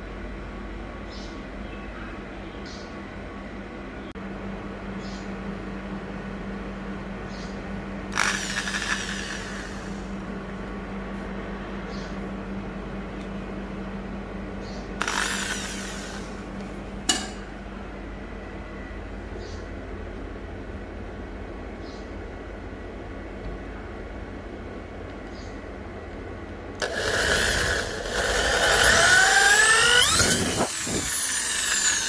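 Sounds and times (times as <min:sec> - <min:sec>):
steady hum: 0:00.0 - 0:32.0
power drill running: 0:08.1 - 0:10.1, 0:15.0 - 0:16.4, 0:26.8 - 0:32.0.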